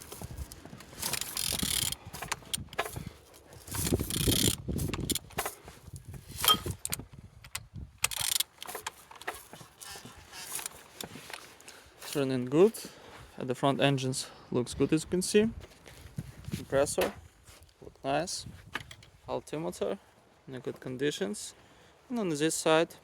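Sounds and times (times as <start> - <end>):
engine turned over by hand: 0.0 - 11.5.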